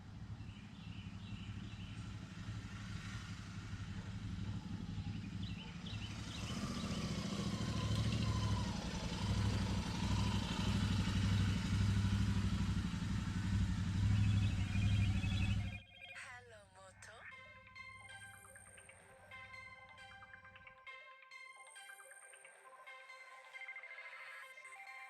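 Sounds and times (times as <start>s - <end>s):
motorcycle engine running: 0.0s - 15.8s
faint bird chirps: 0.0s - 16.4s.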